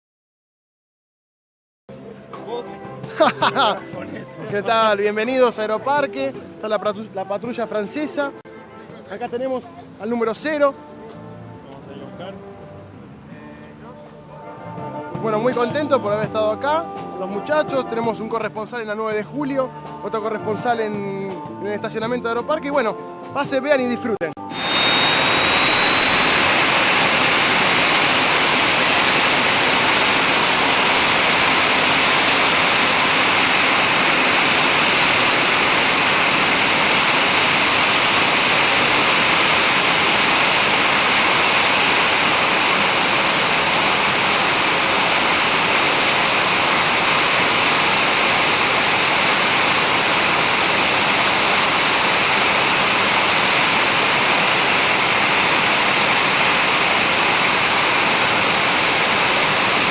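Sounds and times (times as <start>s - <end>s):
jet engines with turbine whine: 24.5s - 59.9s.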